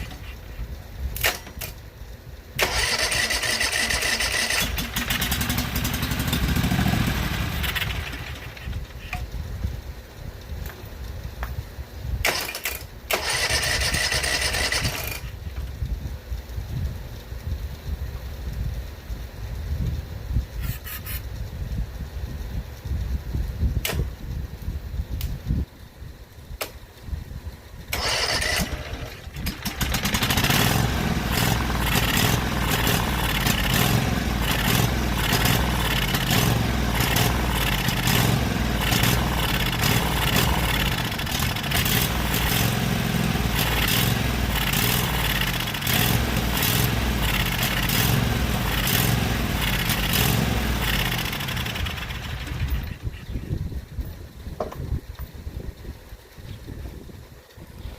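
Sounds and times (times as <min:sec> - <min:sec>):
lawn tractor engine running: 0:00.0 - 0:19.7, 0:26.6 - 0:56.4
engine starter cranking: 0:01.2 - 0:01.8, 0:02.6 - 0:09.2, 0:12.2 - 0:15.4, 0:27.8 - 0:53.2.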